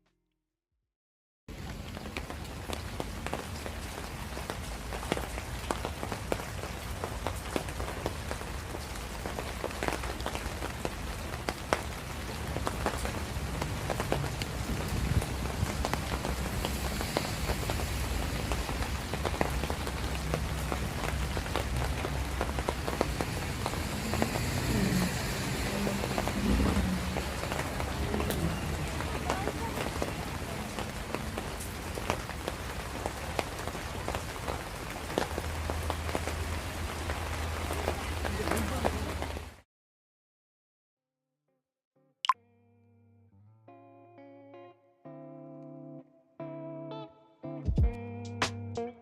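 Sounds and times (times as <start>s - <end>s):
raindrops ticking: 1.5s - 39.6s
steady rain falling: 1.5s - 39.6s.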